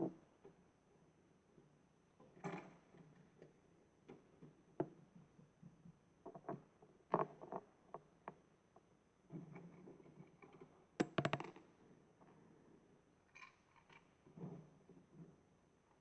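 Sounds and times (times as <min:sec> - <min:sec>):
plastic toy clicks and knocks: 0:11.0 - 0:11.6.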